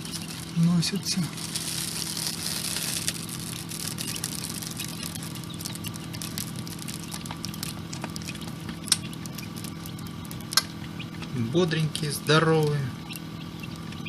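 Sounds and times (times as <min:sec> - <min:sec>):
fans humming: 0:00.0 - 0:14.0
chick feet pattering clicks: 0:03.0 - 0:14.0.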